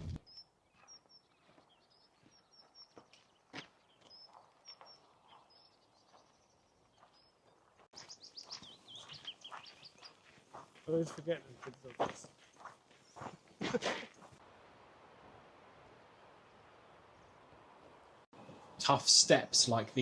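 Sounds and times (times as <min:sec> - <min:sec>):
sweeping bird calls: 0:00.0 - 0:11.2, 0:11.8 - 0:13.6
short high bird chirps: 0:08.0 - 0:10.2.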